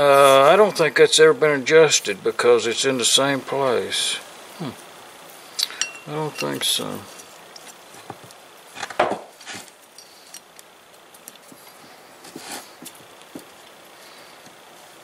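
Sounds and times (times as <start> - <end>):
small metal parts clinking: 5.6 - 7.4.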